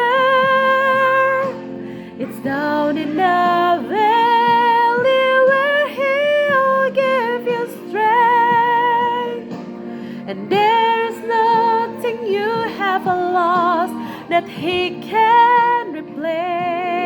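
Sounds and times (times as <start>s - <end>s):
woman singing gospel: 0.0s - 9.6s, 10.2s - 17.0s
backing music: 0.0s - 17.0s.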